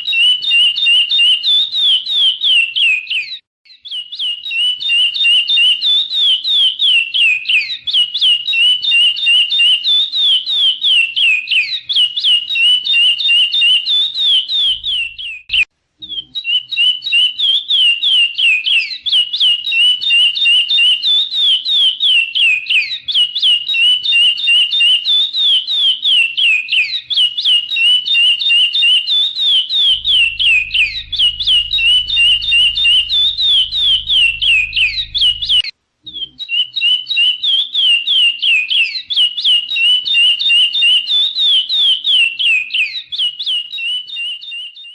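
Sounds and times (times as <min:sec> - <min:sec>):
bird whistled song: 0:00.0 - 0:44.9.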